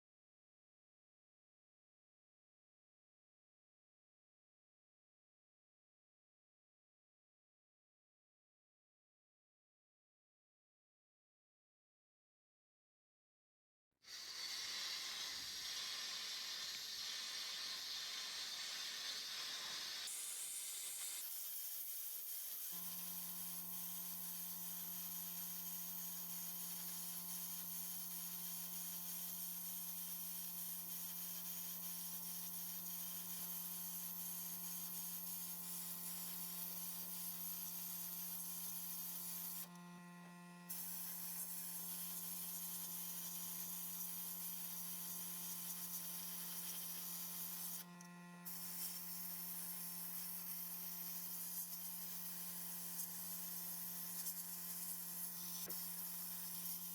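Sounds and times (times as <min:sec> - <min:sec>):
hiss: 0:14.0 - 0:22.8.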